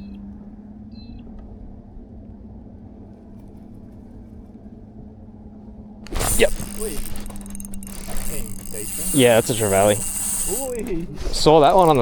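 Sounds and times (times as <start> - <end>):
steady low hum: 6.1 - 12.0.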